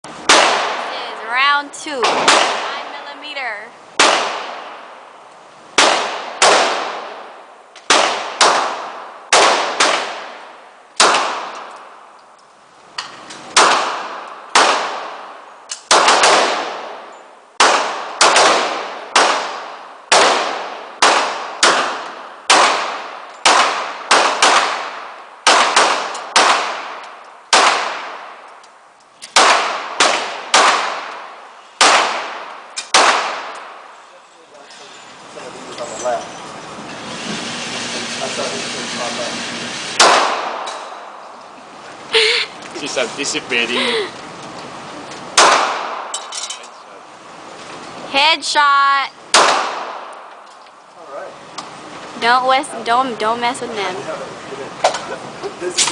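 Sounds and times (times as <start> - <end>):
handgun shots with ringing echo: 40.0 - 41.0, 45.4 - 46.3, 49.3 - 50.1.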